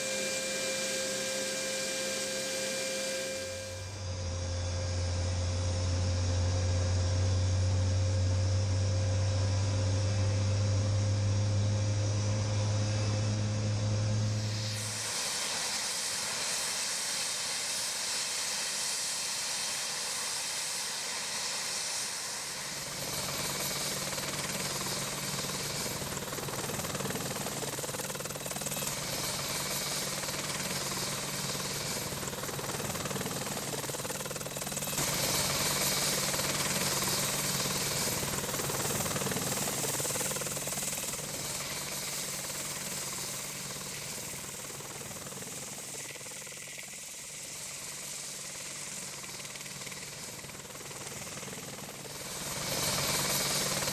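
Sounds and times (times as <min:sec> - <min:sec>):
low steady hum: 0:00.0 - 0:14.8
helicopter turbine and rotor hiss: 0:00.0 - 0:53.9.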